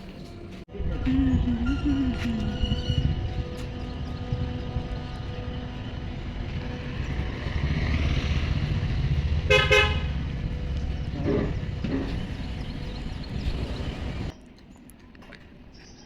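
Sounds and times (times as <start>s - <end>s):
road traffic rumble: 0.0s - 15.6s
vehicle horn beeps: 1.5s - 7.8s, 9.4s - 10.6s.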